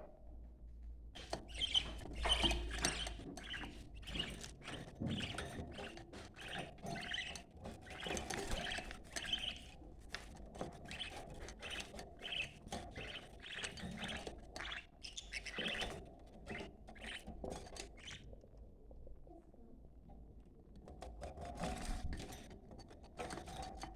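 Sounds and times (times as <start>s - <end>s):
budgerigars chattering: 1.2s - 9.8s, 10.9s - 15.9s.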